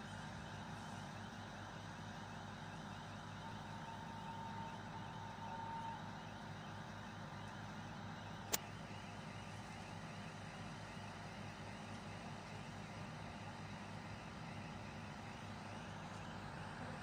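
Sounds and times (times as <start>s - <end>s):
sharp click: 8.5s - 8.7s.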